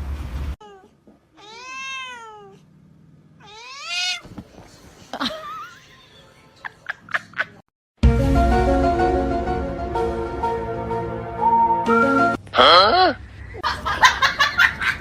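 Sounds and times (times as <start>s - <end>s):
cat meowing: 0.6s - 2.7s, 3.4s - 4.3s.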